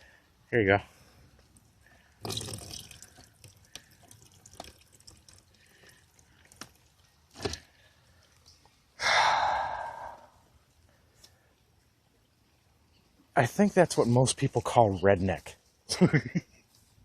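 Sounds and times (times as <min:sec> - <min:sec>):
water dripping into bucket: 0:01.4 - 0:08.8
water gushing: 0:02.2 - 0:06.9.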